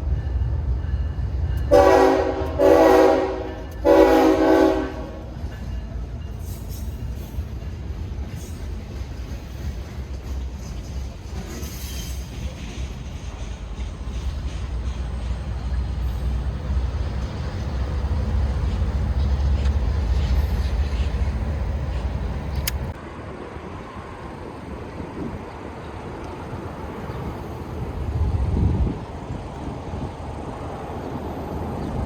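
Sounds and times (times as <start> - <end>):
freight train rumbling past: 0.0 - 32.0
outdoor background noise: 0.0 - 32.0.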